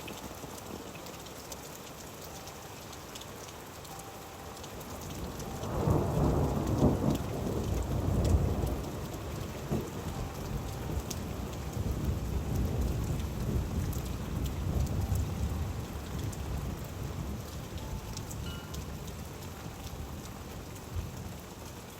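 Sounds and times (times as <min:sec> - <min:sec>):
steady rain: 0:00.0 - 0:21.9
water dripping: 0:00.0 - 0:21.9
low rumble of thunder: 0:04.9 - 0:21.7.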